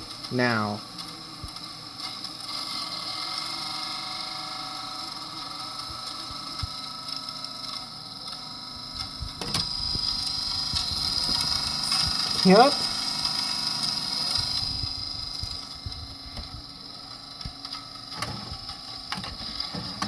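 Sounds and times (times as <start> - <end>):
tape rewinding whir: 0.0 - 20.0
high whine: 8.6 - 20.0.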